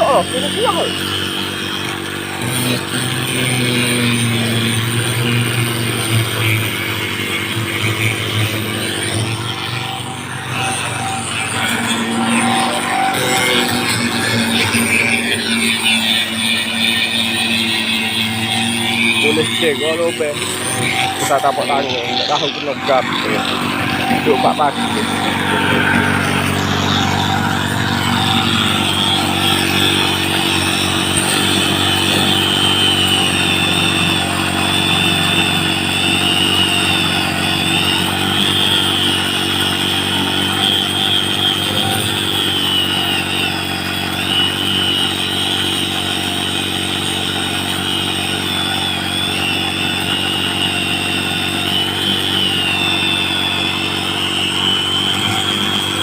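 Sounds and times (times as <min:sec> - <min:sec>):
motor with wavering whine: 0:00.0 - 0:56.0.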